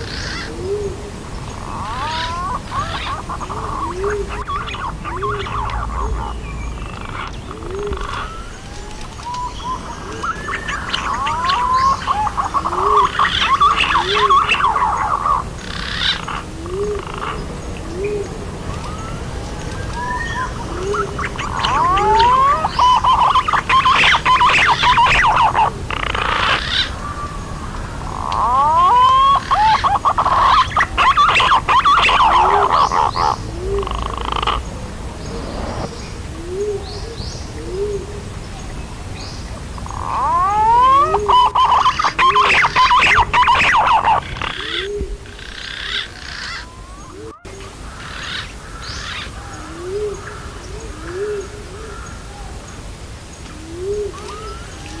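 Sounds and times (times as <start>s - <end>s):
pigeons whistling: 0.0s - 38.0s, 39.8s - 47.6s
low cooing: 0.0s - 38.4s, 39.8s - 47.8s, 49.6s - 52.6s, 53.5s - 55.0s
warbling pigeon whistles: 18.8s - 26.9s, 40.1s - 45.1s.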